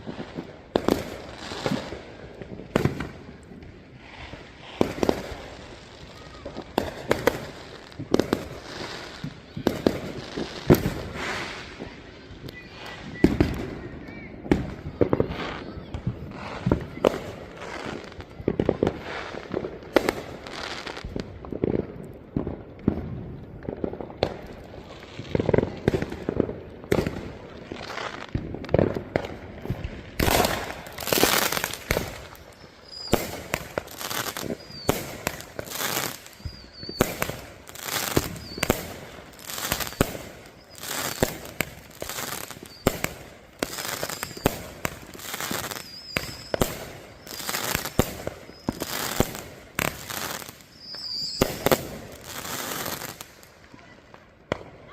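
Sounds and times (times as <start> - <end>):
fireworks bangs and crackling: 0.0 - 54.9
firework whistles: 4.0 - 19.4, 30.2 - 53.5.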